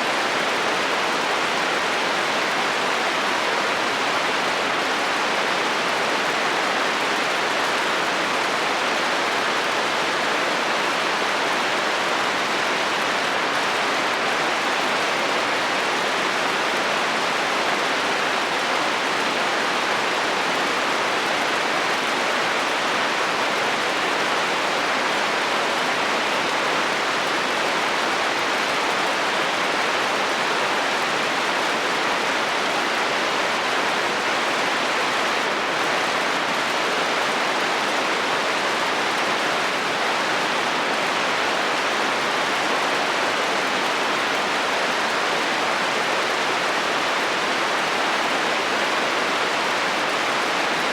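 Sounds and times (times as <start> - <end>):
heavy rain on a metal roof: 0.0 - 50.9.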